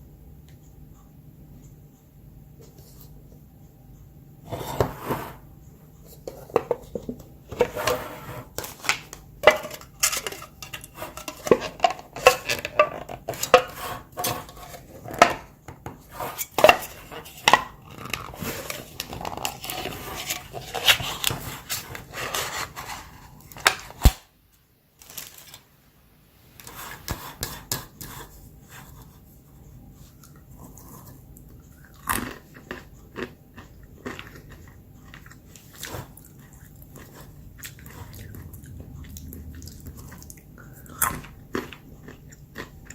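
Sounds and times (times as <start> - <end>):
packaging crinkling and tearing: 25.0 - 25.6.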